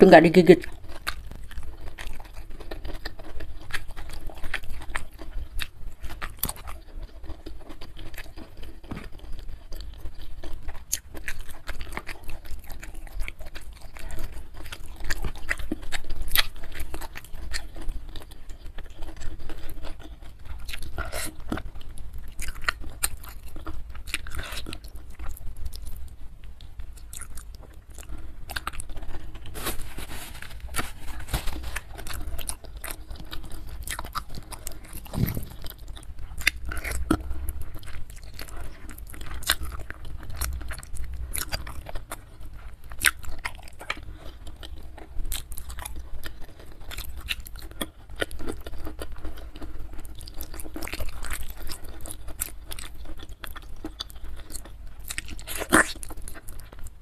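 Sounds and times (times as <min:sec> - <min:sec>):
chewing food close up: 0:00.0 - 0:57.0
wet mouth sounds: 0:33.8 - 0:39.7.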